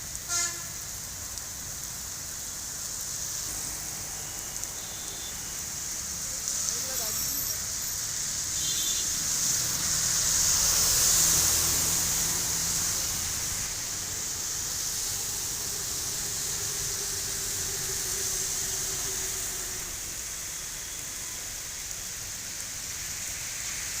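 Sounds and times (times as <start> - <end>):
steady rain hissing: 0.0 - 24.0
vehicle passing: 9.1 - 20.5.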